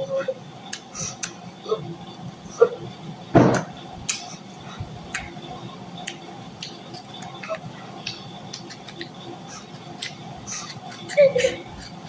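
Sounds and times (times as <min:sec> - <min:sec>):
wet mouth clicks and smacks: 0:00.7 - 0:01.4, 0:04.1 - 0:04.4, 0:06.0 - 0:11.0
person chewing: 0:06.0 - 0:11.1.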